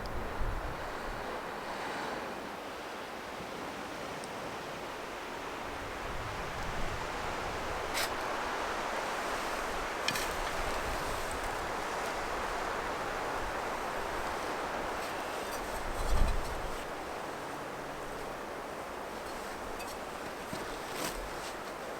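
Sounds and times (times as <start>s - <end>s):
wind rumbling on microphone: 0.0s - 1.6s, 5.7s - 14.9s
rain and wind hiss: 0.0s - 21.9s.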